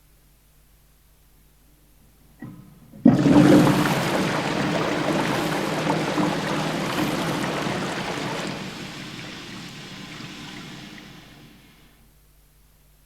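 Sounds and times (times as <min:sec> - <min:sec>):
tape hiss: 0:00.0 - 0:13.0
toilet flushing: 0:02.4 - 0:12.0.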